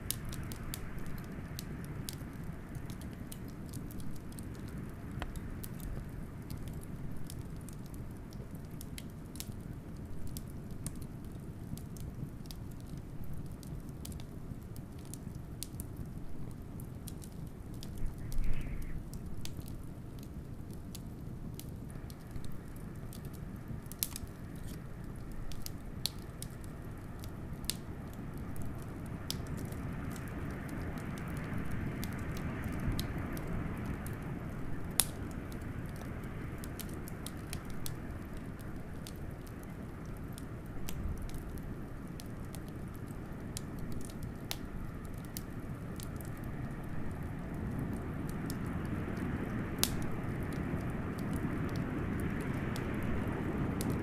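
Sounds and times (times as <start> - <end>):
wood fire crackling: 0.0 - 54.0
wind rumble: 17.8 - 20.5, 44.8 - 54.0.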